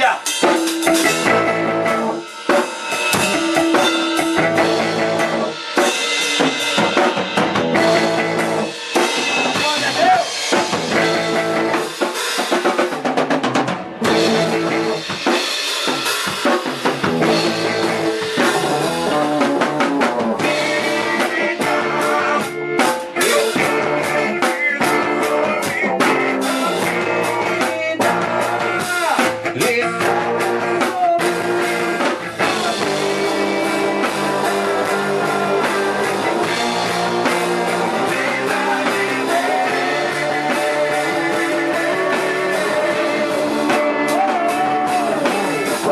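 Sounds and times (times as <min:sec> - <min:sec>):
drum fills: 0:00.0 - 0:45.9
instrumental live band: 0:00.0 - 0:45.9.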